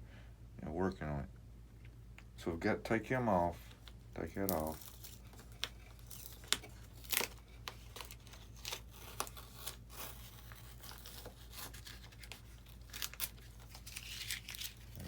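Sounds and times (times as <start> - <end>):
steady low hum: 0.0 - 15.0
tape and foam ripping: 3.8 - 15.0.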